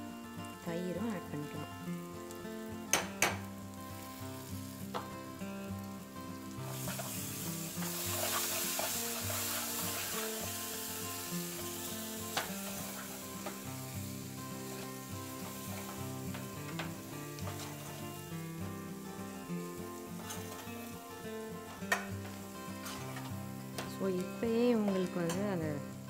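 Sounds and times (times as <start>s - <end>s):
masala sizzling in hot oil: 0.0s - 26.0s
ladle knocking against pan: 2.9s - 3.5s
ladle stirring and scraping: 6.6s - 10.4s, 21.7s - 23.9s.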